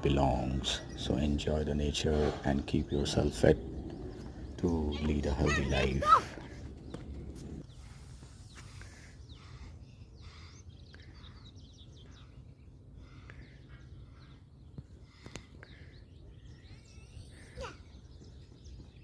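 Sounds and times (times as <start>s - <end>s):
low outdoor rumble: 0.0s - 8.5s
birds chirping: 0.0s - 19.0s.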